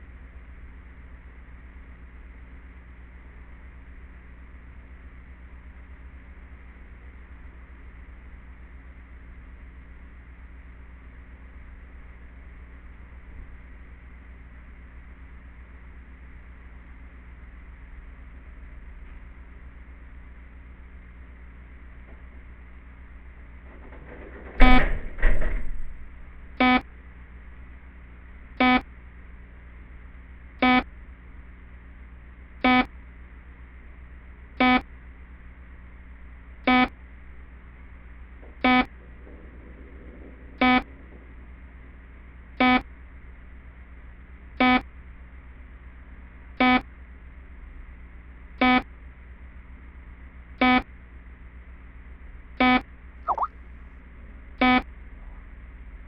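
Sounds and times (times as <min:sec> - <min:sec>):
alarm beeping: 0:28.6 - 0:28.8, 0:38.6 - 0:38.9, 0:40.6 - 0:40.9, 0:42.6 - 0:42.8, 0:52.6 - 0:53.5.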